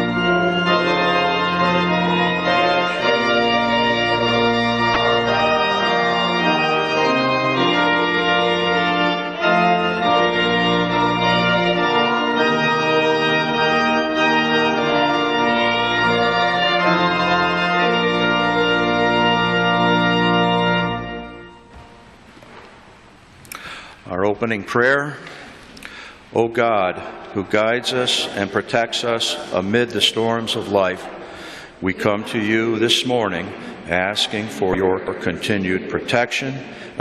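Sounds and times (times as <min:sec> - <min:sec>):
organ playing sustained chords: 0:00.0 - 0:37.0.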